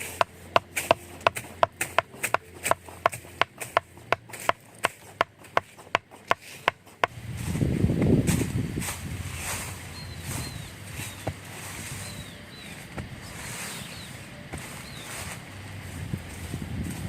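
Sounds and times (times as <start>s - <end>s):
blade chopping wood: 0.0s - 7.1s.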